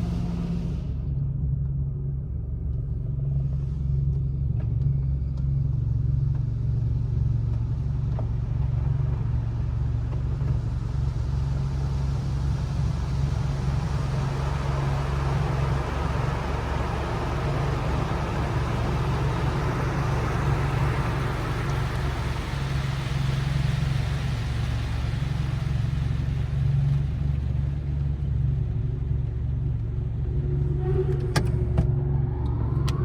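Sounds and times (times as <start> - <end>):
car engine idling: 6.3 - 33.0
car wash spray rushing: 11.3 - 28.0.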